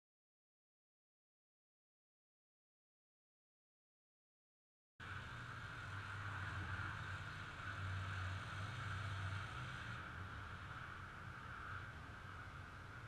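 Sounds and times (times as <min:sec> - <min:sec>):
steady whine: 0:05.0 - 0:13.0.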